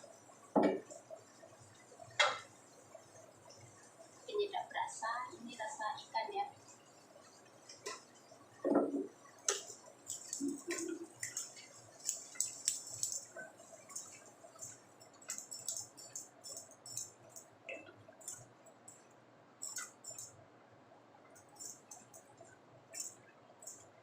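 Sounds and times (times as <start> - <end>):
stir-frying crackles: 0.0 - 19.0.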